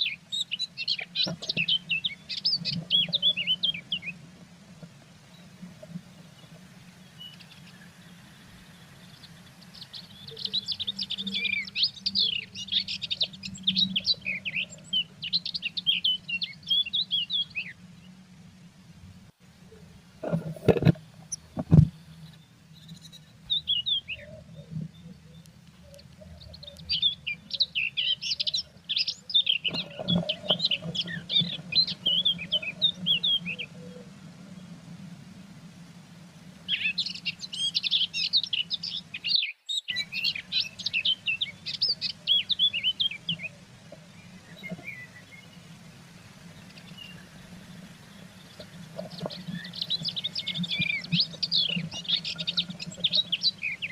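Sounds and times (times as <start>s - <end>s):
birds chirping rapidly: 0.0s - 4.2s, 5.2s - 18.2s, 19.7s - 34.8s, 36.5s - 53.9s.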